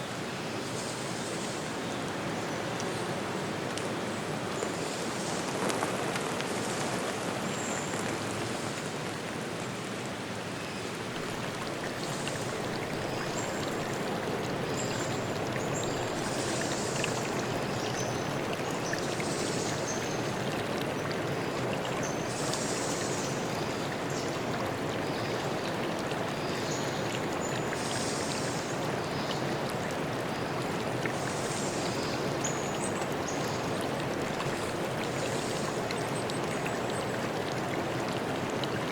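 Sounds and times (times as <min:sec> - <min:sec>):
running water rushing: 0:11.0 - 0:38.9.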